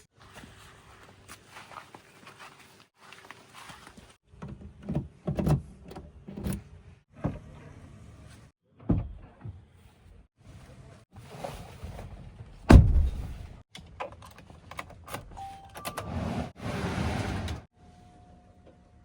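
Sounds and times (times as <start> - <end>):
backhoe heavy thuds and knocks: 12.7 - 13.6.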